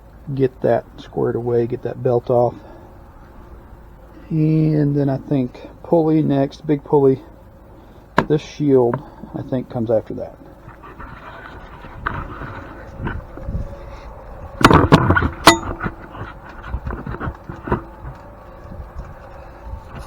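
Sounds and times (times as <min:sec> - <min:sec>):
metal knocks and clanks: 0:14.6 - 0:16.0
ringing metallic strike: 0:15.4 - 0:15.8.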